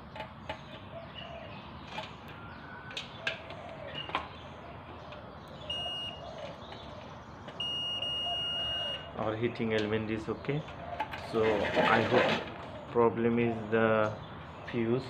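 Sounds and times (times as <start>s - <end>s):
multimeter continuity beeping: 5.7s - 6.2s, 7.5s - 9.1s.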